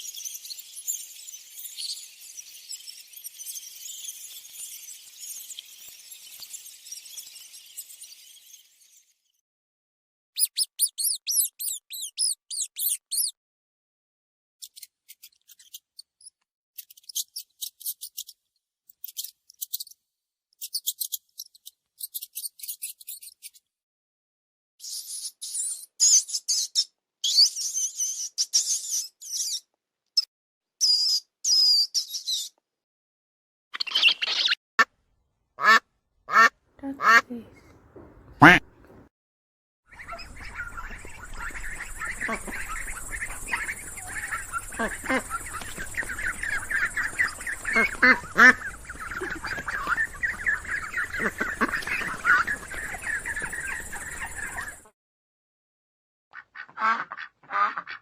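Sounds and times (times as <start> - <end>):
small animal squeaking: 10.4 - 13.3, 37.0 - 39.0
ducks quacking: 35.6 - 39.0, 39.9 - 54.8, 56.4 - 58.0.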